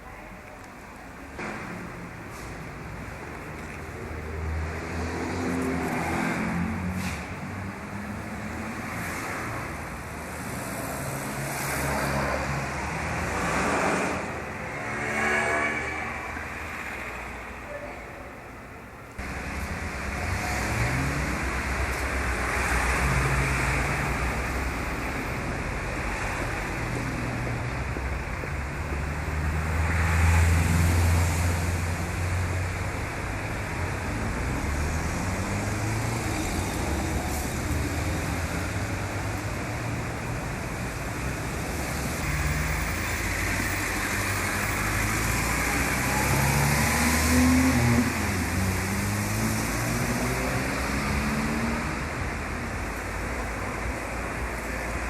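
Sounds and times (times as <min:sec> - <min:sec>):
road noise rushing: 0:00.0 - 0:55.0
vehicle engines running: 0:19.1 - 0:55.0.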